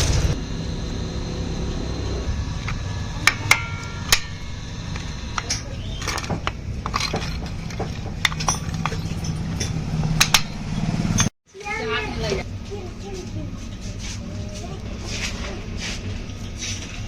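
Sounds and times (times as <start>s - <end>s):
steady low hum: 0.0s - 11.3s
metal tools clinking: 3.3s - 11.3s.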